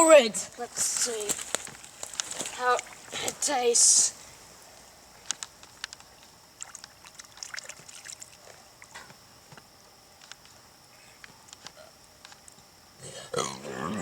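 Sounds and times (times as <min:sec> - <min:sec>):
steady high hiss: 0:00.0 - 0:07.0
water drips and small splashes: 0:01.0 - 0:03.5, 0:05.7 - 0:09.2.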